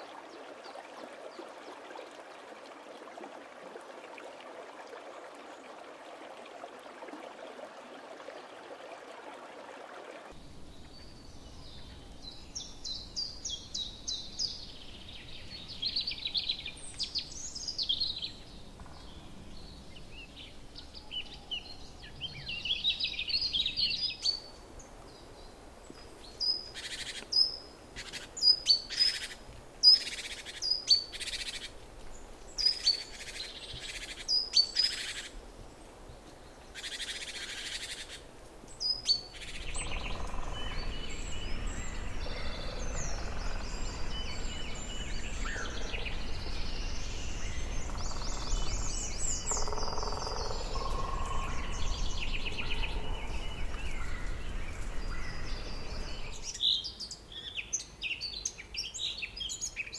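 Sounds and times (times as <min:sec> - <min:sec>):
birds chattering and twittering: 0:36.2 - 0:59.9.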